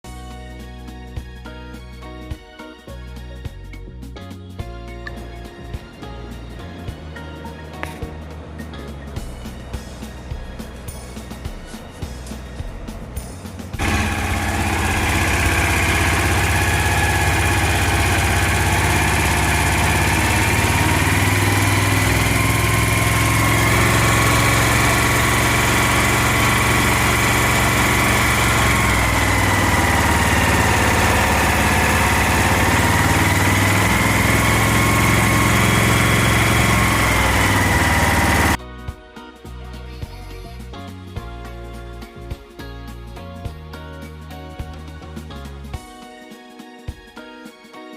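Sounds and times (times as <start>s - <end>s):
crane engine running: 5.1s - 38.6s.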